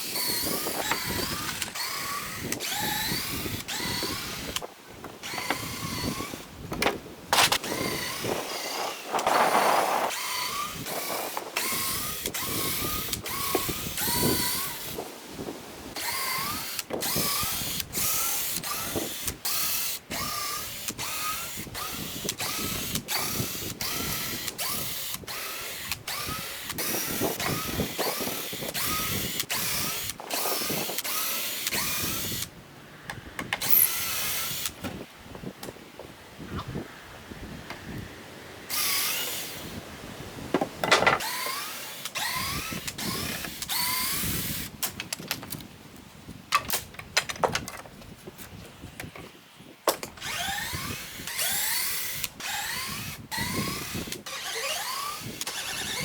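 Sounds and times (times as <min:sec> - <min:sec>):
cordless drill whining: 0:00.0 - 0:06.5, 0:07.4 - 0:15.0, 0:15.9 - 0:32.5, 0:33.6 - 0:34.8, 0:38.7 - 0:39.8, 0:41.1 - 0:44.8, 0:50.1 - 0:56.0.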